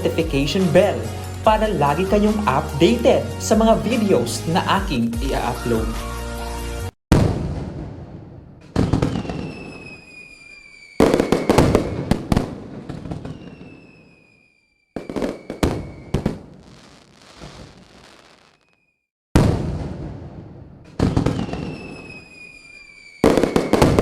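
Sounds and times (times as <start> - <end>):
fireworks booming and crackling: 7.1 - 18.8, 19.4 - 24.0
falling firework whistles: 8.8 - 19.1, 21.0 - 24.0.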